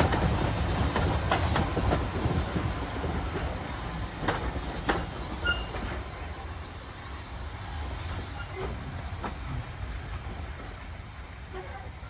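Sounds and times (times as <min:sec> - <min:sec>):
wheels clicking over rail joints: 0:00.0 - 0:06.1
train wheels rumbling on rails: 0:00.0 - 0:12.0.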